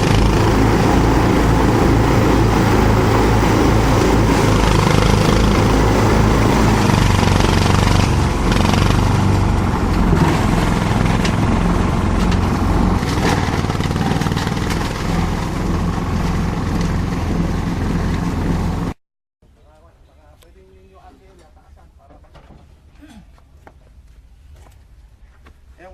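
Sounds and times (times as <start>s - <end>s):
shredder motor drone: 0.0s - 19.0s.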